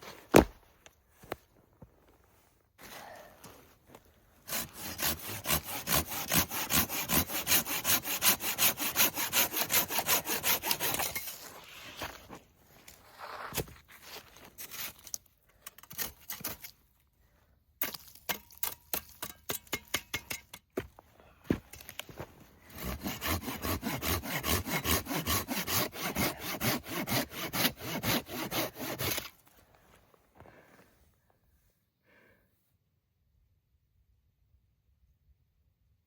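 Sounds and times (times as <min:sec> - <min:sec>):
hand saw cutting wood: 0:04.4 - 0:12.2, 0:22.7 - 0:29.5.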